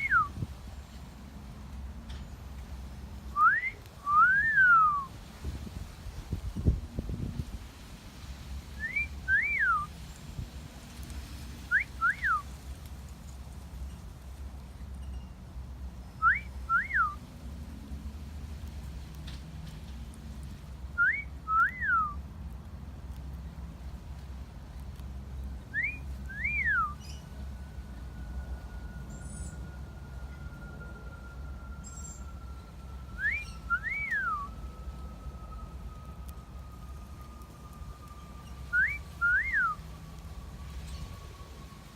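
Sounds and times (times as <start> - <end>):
wolf whistle: 0.0 - 0.3, 3.4 - 5.1, 8.8 - 9.9, 11.7 - 12.4, 16.2 - 17.2, 21.0 - 22.2, 25.7 - 27.1, 33.1 - 34.6, 38.4 - 39.8
wolf whistles: 25.8 - 27.0, 33.2 - 34.6, 38.7 - 39.8
faint steady high tone: 25.9 - 41.9.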